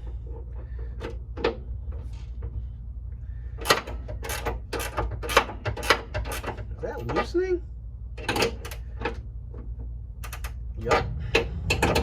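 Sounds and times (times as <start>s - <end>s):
wrench metal clicks and clanks: 3.6s - 7.4s, 8.2s - 9.2s, 10.2s - 12.0s.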